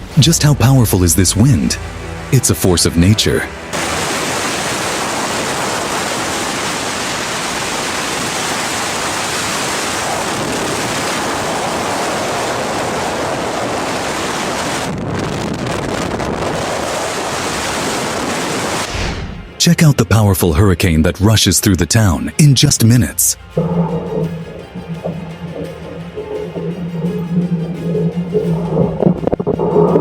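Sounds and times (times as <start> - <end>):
strong wind on microphone: 3.7 - 18.9, 23.6 - 30.0.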